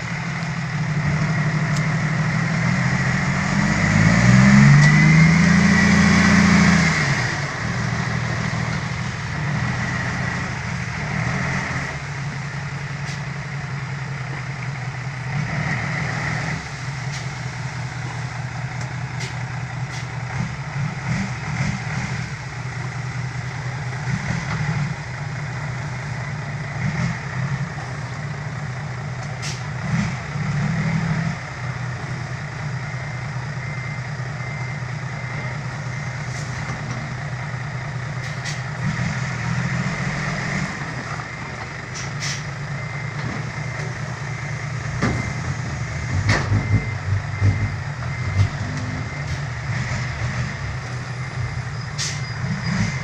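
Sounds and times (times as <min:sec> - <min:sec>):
diesel truck engine running: 0:00.0 - 0:53.0
repeated beeping: 0:44.8 - 0:50.6.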